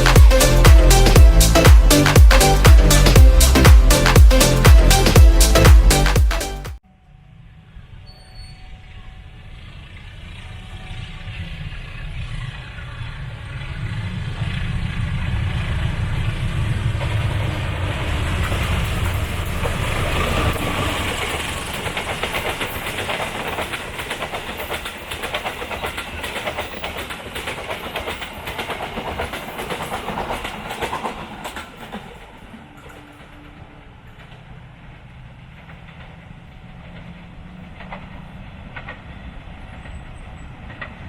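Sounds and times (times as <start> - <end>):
train rumble: 0.0 - 6.6, 8.8 - 41.0
train wheels clattering over rail joints: 16.9 - 33.3.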